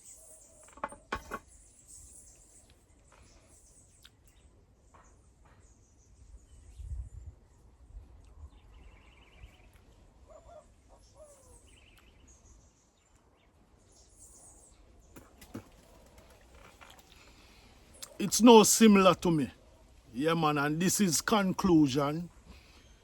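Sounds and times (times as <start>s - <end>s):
birds chirping: 8.5s - 23.0s.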